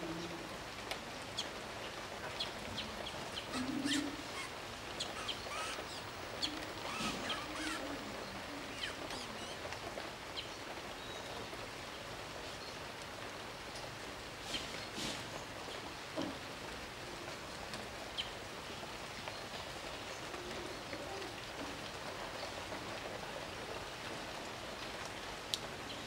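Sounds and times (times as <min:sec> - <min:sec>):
birds chirping: 0:01.4 - 0:11.5.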